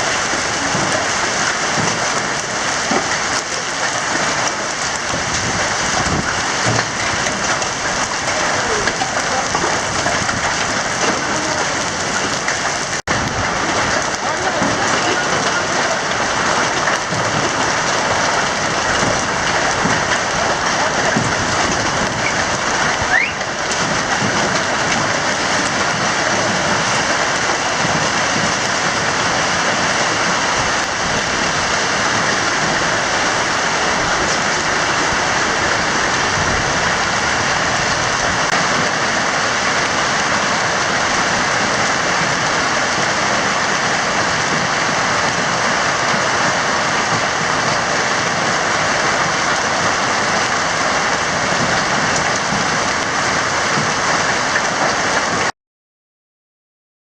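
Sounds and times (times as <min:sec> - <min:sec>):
hail and rain falling hard: 0:00.0 - 0:55.5
short rising whistle: 0:23.1 - 0:23.4.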